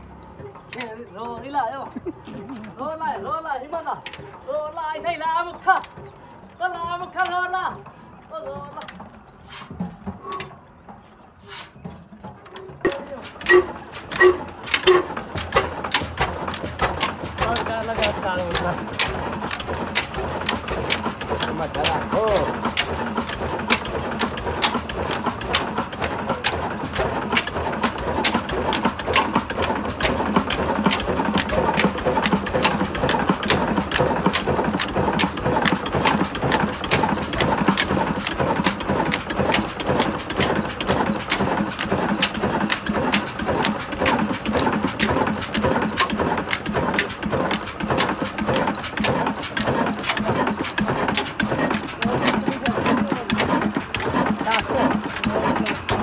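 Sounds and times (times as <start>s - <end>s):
diesel engine knocking: 0.0s - 56.0s.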